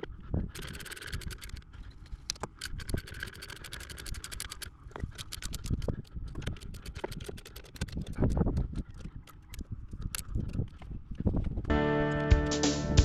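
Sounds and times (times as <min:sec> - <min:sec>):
mechanical clicking and scraping: 0:00.0 - 0:11.6.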